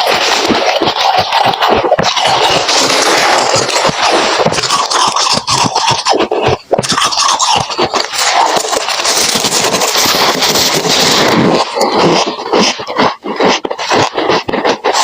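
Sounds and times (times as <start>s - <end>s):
frost being chewed crunching: 0.0s - 15.0s.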